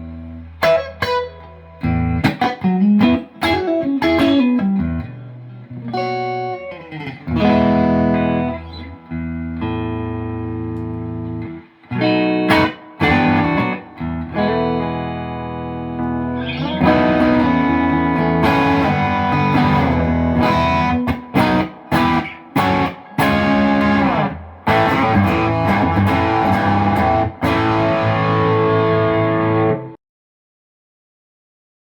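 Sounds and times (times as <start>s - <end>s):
electric guitar chords: 0.0s - 30.0s.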